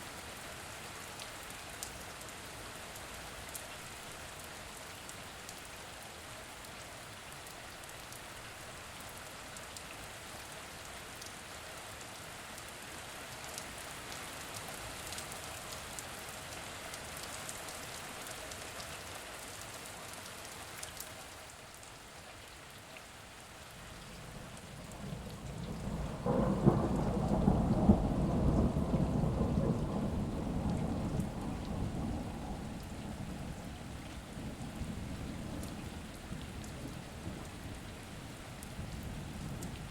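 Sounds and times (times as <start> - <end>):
rain falling: 0.0 - 39.9
thunder rolling: 24.8 - 33.4.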